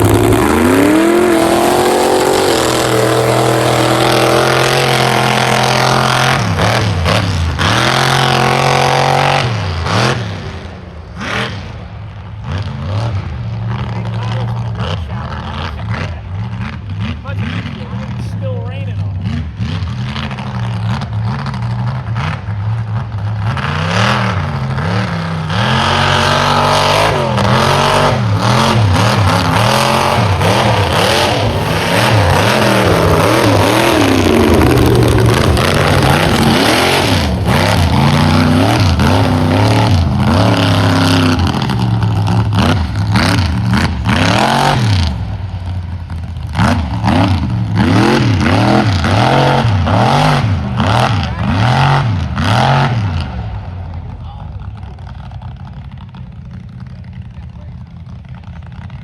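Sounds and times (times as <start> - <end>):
loud rushing noise: 0.0 - 7.2, 25.6 - 43.0
truck engine revving: 0.0 - 59.0.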